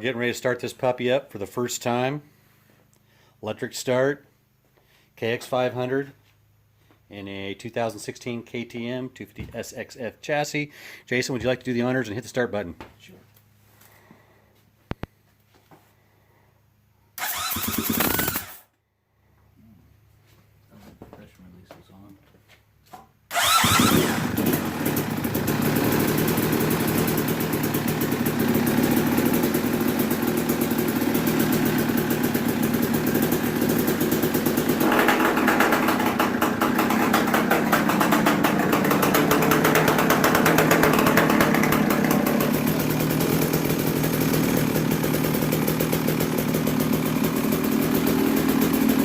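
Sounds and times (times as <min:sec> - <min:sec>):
two-stroke engine running: 0:17.2 - 0:18.6, 0:23.3 - 0:49.0.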